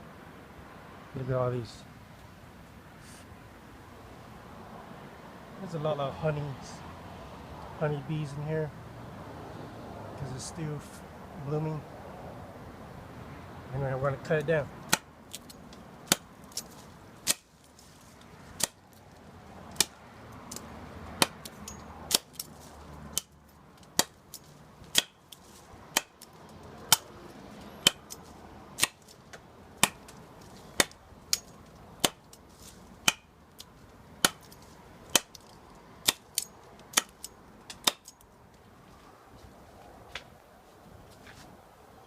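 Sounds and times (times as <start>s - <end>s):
machete striking wood: 14.9s - 17.5s, 18.6s - 18.8s, 19.7s - 20.6s, 21.2s - 22.5s, 23.1s - 27.2s, 27.8s - 28.2s, 28.8s - 32.4s, 33.0s - 35.4s, 36.0s - 38.2s.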